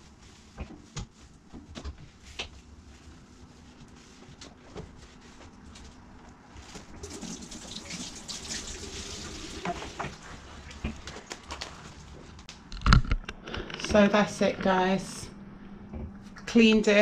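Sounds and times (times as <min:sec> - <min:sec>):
water running from a tap: 0:07.0 - 0:10.2.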